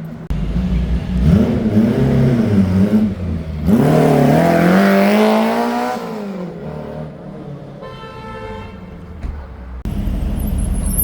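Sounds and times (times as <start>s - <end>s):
car engine accelerating: 0.0s - 7.3s.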